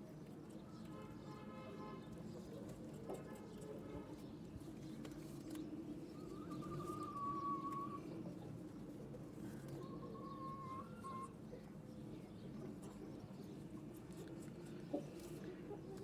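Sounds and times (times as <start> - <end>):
birds cooing: 6.1 - 8.4, 9.5 - 11.4.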